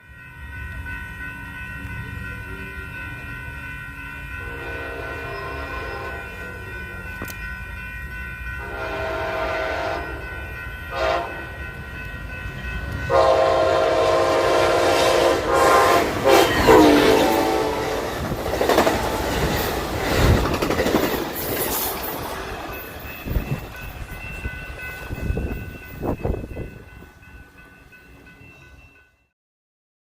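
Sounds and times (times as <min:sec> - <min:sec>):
train passing rumble: 0:00.0 - 0:29.2
train horn blasts: 0:04.4 - 0:06.7, 0:08.6 - 0:11.7, 0:13.0 - 0:18.2.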